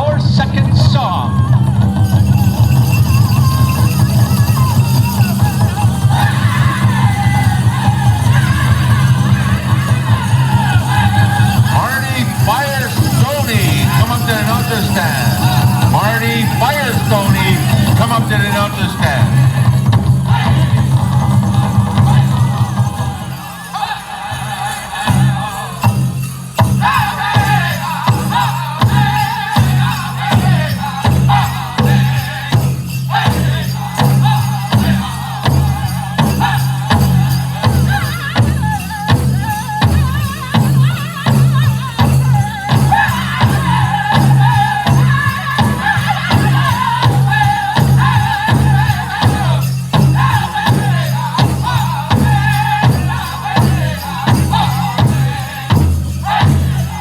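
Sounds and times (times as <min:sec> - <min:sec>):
big drum steady beat: 0:00.0 - 0:23.6, 0:24.5 - 0:57.0
group singing in unison: 0:03.2 - 0:57.0.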